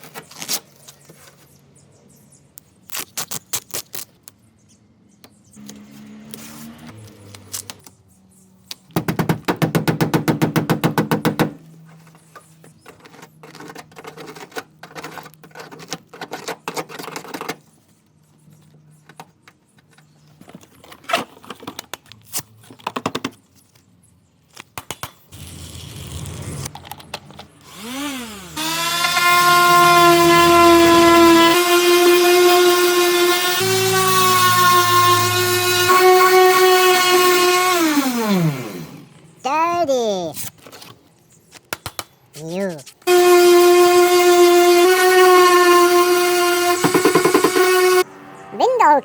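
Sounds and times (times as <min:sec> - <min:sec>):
tools clicking and knocking: 0:12.6 - 0:17.7, 0:46.8 - 0:47.8
power tool spinning: 0:27.6 - 0:39.1, 0:43.1 - 0:48.0.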